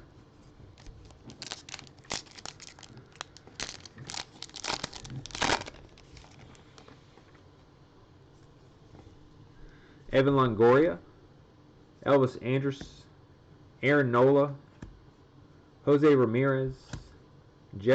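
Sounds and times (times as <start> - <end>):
plastic wrapper crinkling and tearing: 0.8 - 6.9.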